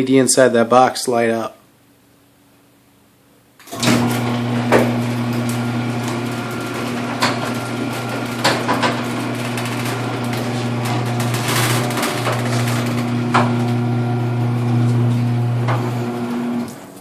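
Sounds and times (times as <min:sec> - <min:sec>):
garage door opener motor humming: 0:03.6 - 0:17.0
door clattering along track: 0:03.7 - 0:17.0.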